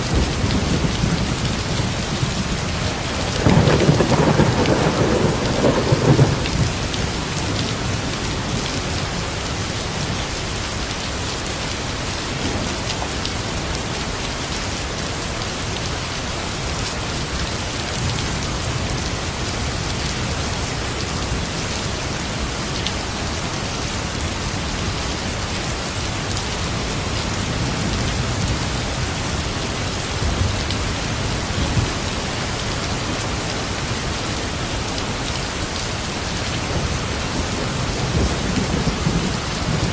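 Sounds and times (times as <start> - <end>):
low thunder rumble: 0.0 - 8.7, 36.7 - 39.9
steady rain falling: 0.0 - 39.9.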